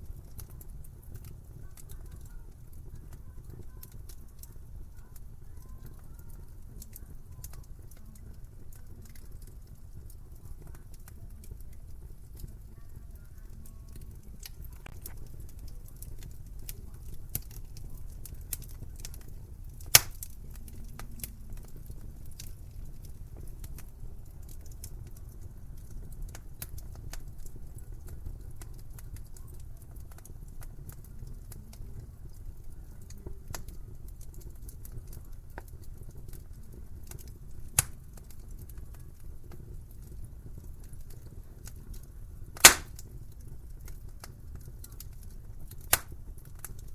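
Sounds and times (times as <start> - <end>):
wood fire crackling: 0.0 - 46.9
loud sharp fire pops: 18.5 - 21.1, 37.7 - 38.3, 42.6 - 43.1, 45.8 - 46.2.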